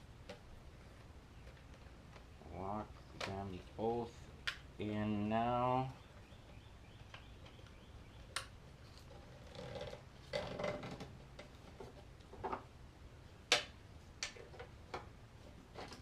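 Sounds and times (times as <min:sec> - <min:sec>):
plastic rubbing and scraping: 0:08.8 - 0:12.6, 0:14.4 - 0:16.0.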